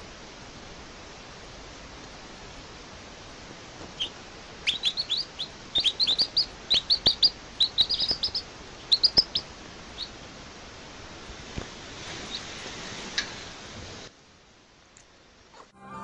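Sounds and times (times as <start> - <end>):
steady background hiss: 0.0 - 16.0
baby bird chirping: 3.9 - 10.2.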